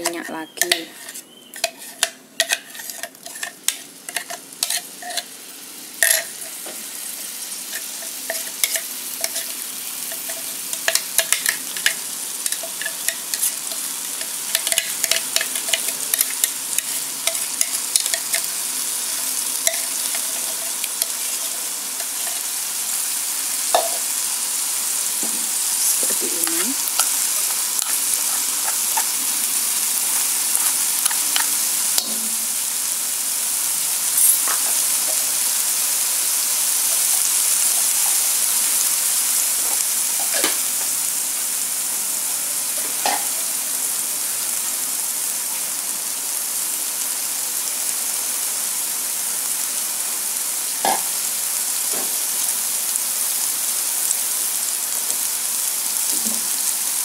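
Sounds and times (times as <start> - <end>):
spice paste sizzling in a wok: 0.0 - 57.0
metal spoon scraping glass jar: 0.6 - 5.3, 34.2 - 34.8.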